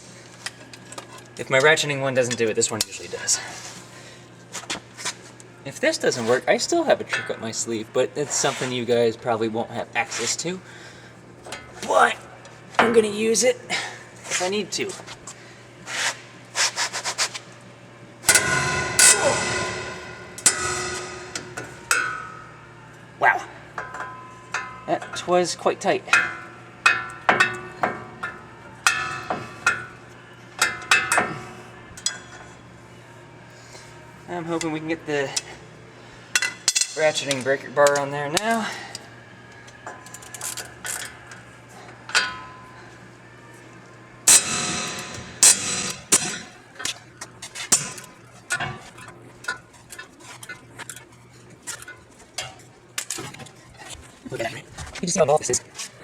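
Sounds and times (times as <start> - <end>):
steel hand tools clanking: 18.3 - 22.5, 23.8 - 25.3, 26.1 - 30.0, 44.3 - 46.6.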